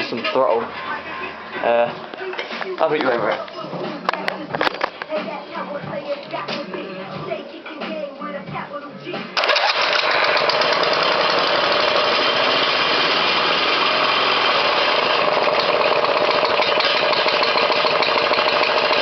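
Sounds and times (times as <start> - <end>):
four-stroke engine running: 9.4 - 19.0.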